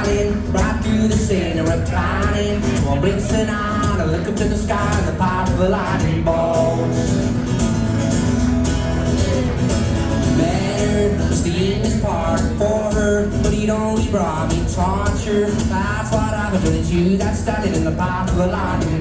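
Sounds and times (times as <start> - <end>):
man singing: 0.0 - 7.3, 10.3 - 19.0
drum beat: 0.0 - 8.0
guitar: 0.0 - 19.0.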